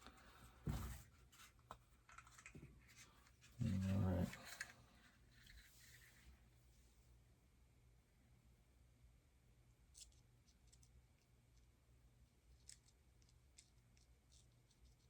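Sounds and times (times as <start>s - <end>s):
faint low hum: 0.0s - 15.0s
small objects clicking: 12.5s - 15.0s.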